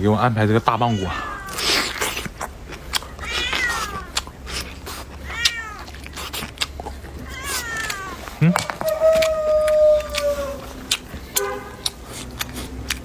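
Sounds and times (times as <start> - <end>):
cat meowing: 0.7 - 1.9, 3.2 - 4.2, 5.2 - 6.0, 7.2 - 10.8.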